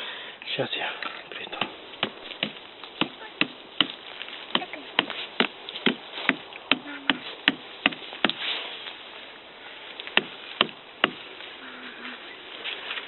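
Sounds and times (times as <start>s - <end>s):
blade chopping wood: 1.6s - 8.4s, 10.2s - 11.2s.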